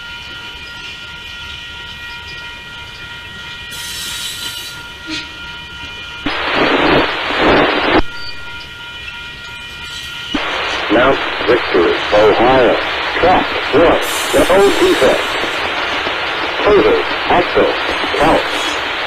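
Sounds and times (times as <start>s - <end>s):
high ringing tones: 0.0s - 19.0s
loud hiss burst: 13.8s - 15.8s.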